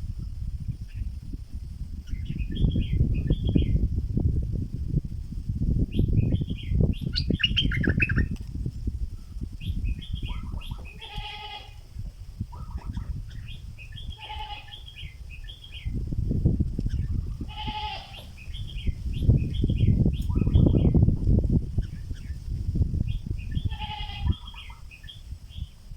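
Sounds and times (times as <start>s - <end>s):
bird singing bubbling phrases: 6.0s - 8.3s, 9.6s - 11.1s, 12.5s - 16.0s, 18.4s - 21.0s
harsh bird calls: 6.0s - 8.4s, 9.6s - 11.8s, 12.4s - 16.0s, 16.9s - 21.0s, 23.1s - 25.7s.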